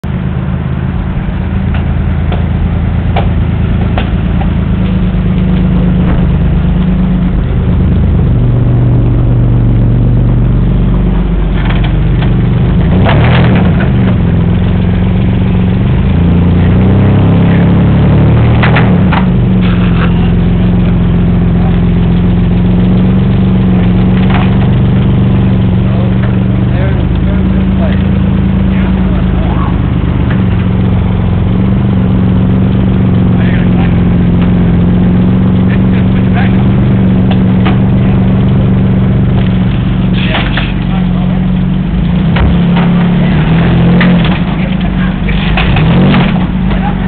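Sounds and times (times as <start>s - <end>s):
truck engine revving: 0.0s - 47.0s
metal banging and cracking: 1.6s - 7.6s, 11.5s - 17.0s, 22.1s - 28.2s, 39.2s - 47.0s.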